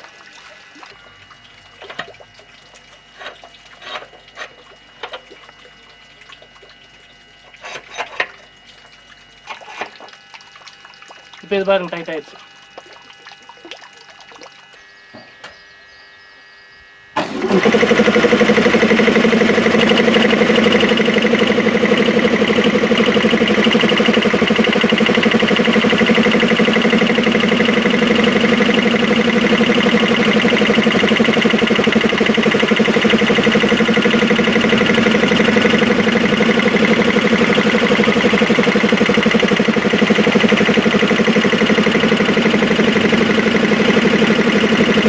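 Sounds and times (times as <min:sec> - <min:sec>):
air compressors running: 0:17.2 - 0:45.0.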